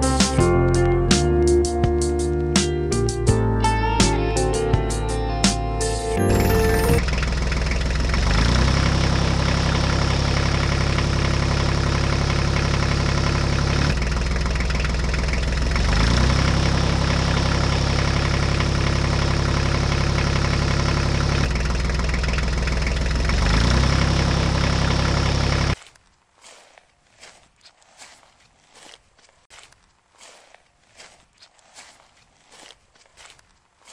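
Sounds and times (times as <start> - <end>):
tractor engine idling with knocking: 6.2 - 25.8.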